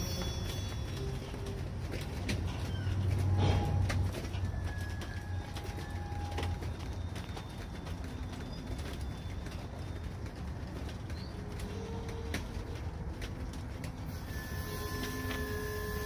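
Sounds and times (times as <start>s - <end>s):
freight train rumbling: 0.0s - 16.0s
train wheels clicking and knocking: 0.0s - 16.0s
faint squeals: 1.9s - 10.2s.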